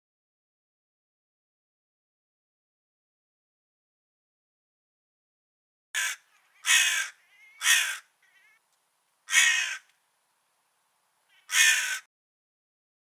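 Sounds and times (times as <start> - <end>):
crow cawing: 6.0 - 8.6, 9.2 - 9.9, 11.3 - 12.1
faint soft bird calls: 6.0 - 12.1.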